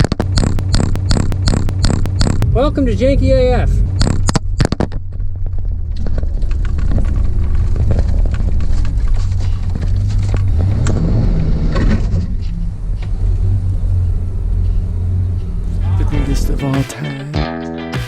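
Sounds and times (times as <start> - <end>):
knocks: 0.0 - 2.5
car engine rumbling: 0.0 - 16.8.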